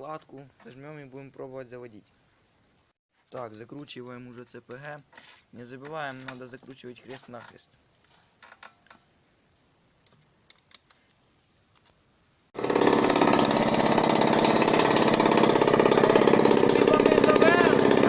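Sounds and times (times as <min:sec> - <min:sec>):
two-stroke engine running loud: 0:12.6 - 0:18.0.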